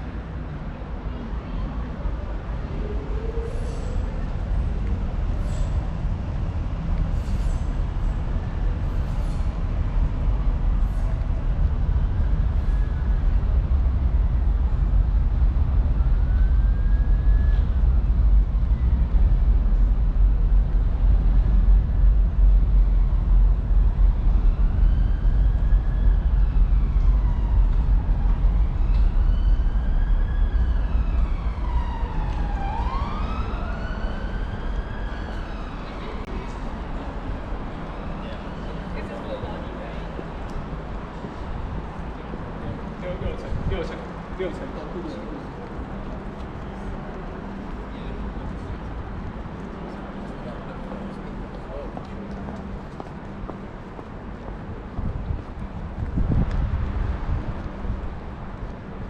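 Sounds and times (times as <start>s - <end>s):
low rumble of passing traffic: 0.0s - 59.0s
emergency vehicle siren wailing: 15.7s - 18.7s, 24.2s - 39.5s.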